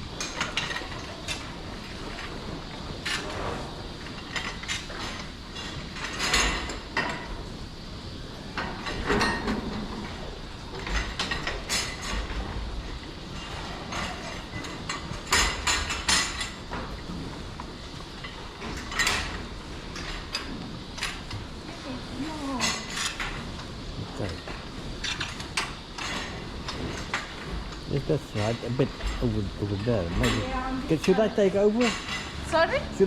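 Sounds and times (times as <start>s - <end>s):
metal clanks and scrapes: 8.6s - 10.2s.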